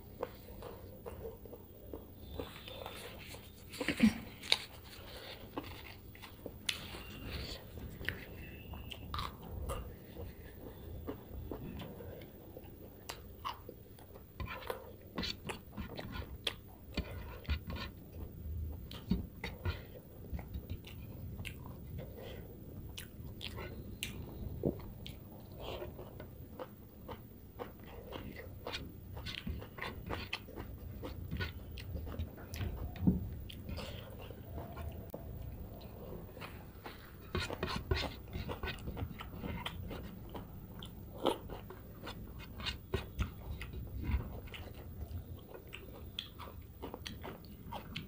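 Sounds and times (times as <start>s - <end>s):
person chewing and smacking: 0.0s - 48.0s.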